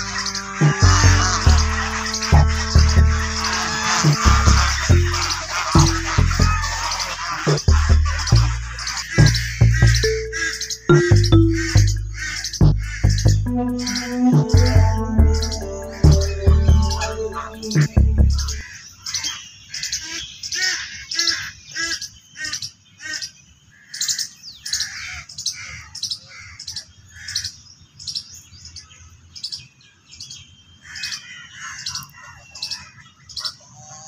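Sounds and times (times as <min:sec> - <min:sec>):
music track: 0:00.0 - 0:18.6
birds chirping: 0:00.0 - 0:34.0.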